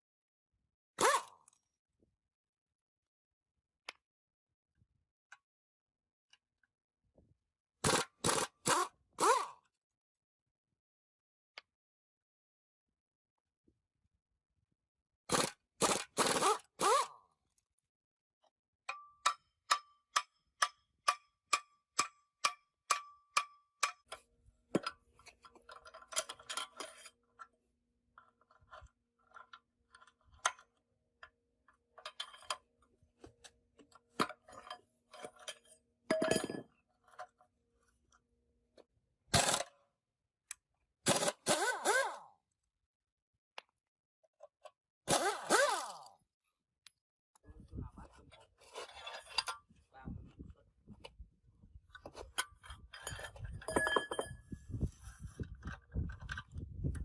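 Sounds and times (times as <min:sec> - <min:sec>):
metal tools clanking: 0:34.4 - 0:36.7, 0:52.1 - 0:54.6
ringing metallic taps: 0:53.1 - 0:54.4.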